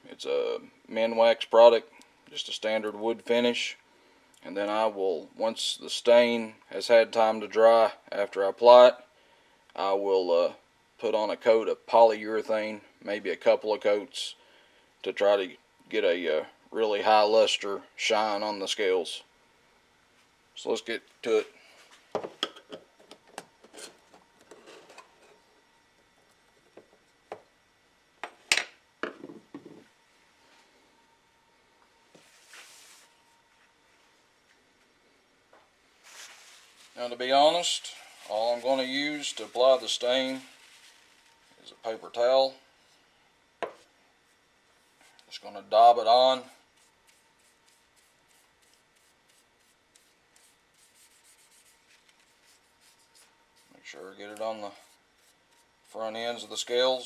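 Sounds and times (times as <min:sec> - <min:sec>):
paper towel rubbing on wood: 0:36.0 - 0:41.3, 0:46.8 - 0:54.0
rustling: 0:36.0 - 0:41.6.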